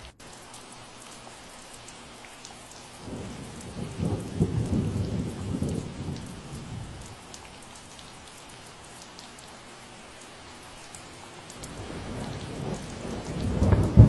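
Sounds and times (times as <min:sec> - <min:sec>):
steady rain: 0:00.0 - 0:14.0
water dripping: 0:00.0 - 0:14.0
thunder rumbling: 0:03.0 - 0:07.2, 0:11.6 - 0:14.0.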